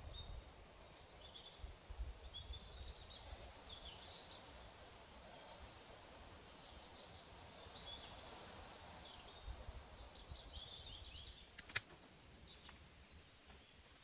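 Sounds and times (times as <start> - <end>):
small birds chirping: 0.0 - 5.6, 6.3 - 14.0
sharp clicks or knocks: 11.5 - 12.0.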